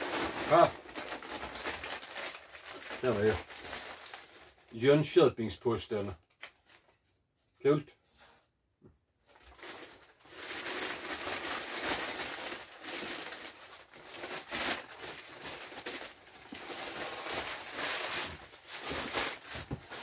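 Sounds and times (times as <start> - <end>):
packing paper rustling and crumpling: 0.0 - 4.9, 9.3 - 20.0.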